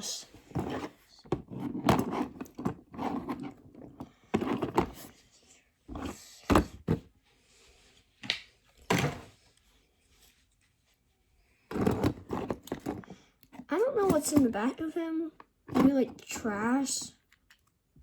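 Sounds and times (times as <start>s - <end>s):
toy car knocks and thunks: 5.9s - 7.1s.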